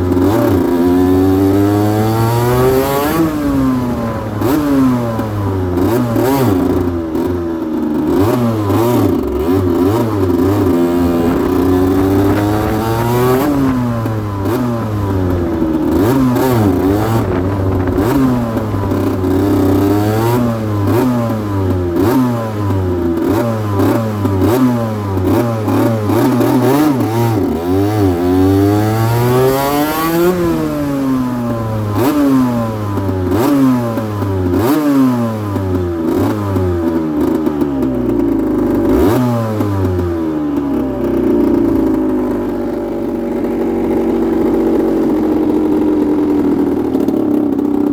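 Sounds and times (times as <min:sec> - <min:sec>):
two-stroke motorcycle engine revving: 0:00.0 - 0:47.9.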